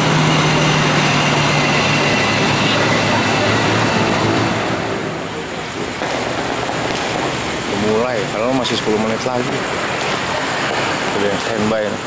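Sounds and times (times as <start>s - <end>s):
passenger train passing: 0.0s - 12.0s.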